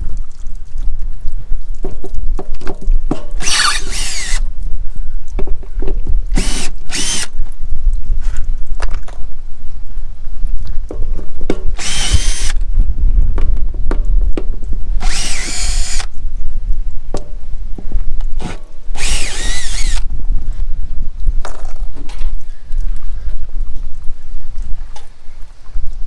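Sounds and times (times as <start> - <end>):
steady low rumble: 3.0 - 26.0
power drill spinning: 3.4 - 4.4, 6.3 - 7.4, 11.8 - 12.6, 15.0 - 16.1, 18.4 - 20.1.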